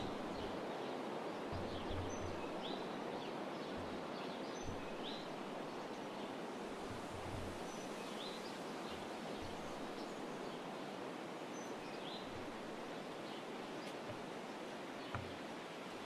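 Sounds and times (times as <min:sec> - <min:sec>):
outdoor background hiss: 0:00.0 - 0:16.0
soft low bump: 0:01.5 - 0:02.8, 0:04.6 - 0:05.9, 0:06.7 - 0:10.5.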